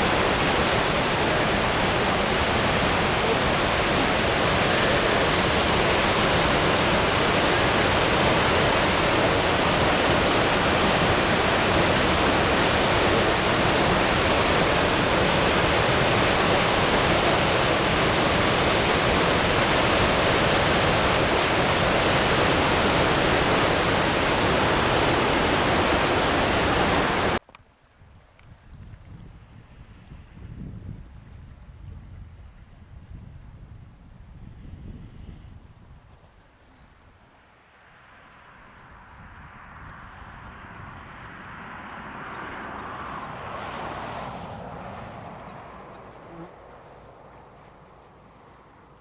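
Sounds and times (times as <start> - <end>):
waterfall rushing: 0.0 - 27.4.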